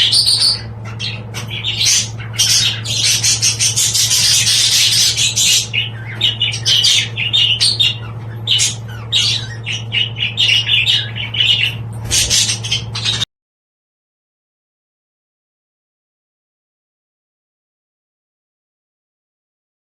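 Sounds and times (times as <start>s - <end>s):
budgerigars chattering: 0.0s - 13.3s
steady low hum: 0.0s - 13.3s.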